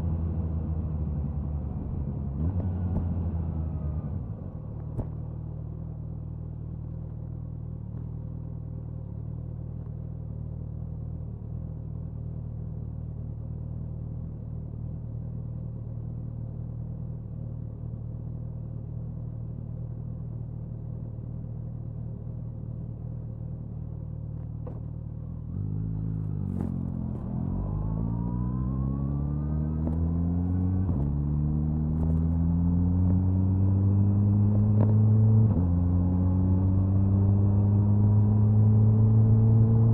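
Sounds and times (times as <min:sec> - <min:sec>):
motorcycle engine accelerating: 0:24.6 - 0:39.9.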